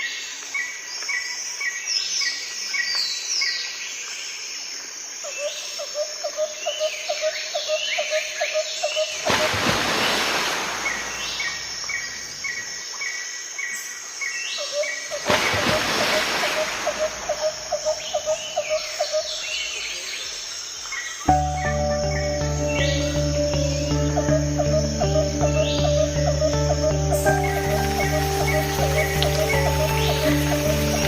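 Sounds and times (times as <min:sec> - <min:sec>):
birds chirping and calling: 0:16.6 - 0:31.0.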